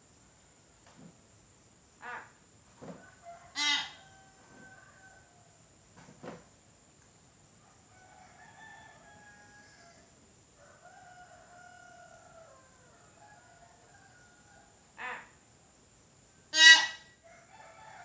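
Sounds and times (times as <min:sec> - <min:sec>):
bird crowing: 0:03.1 - 0:05.5, 0:16.5 - 0:18.0.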